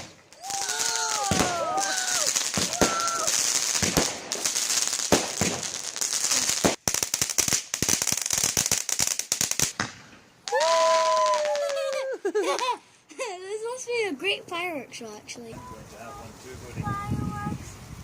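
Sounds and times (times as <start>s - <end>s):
fireworks crackling: 0.0s - 14.2s.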